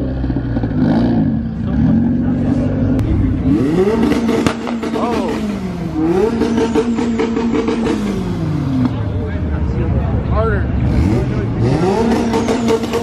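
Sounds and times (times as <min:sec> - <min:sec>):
car engine on rev limiter: 0:10.8 - 0:13.0.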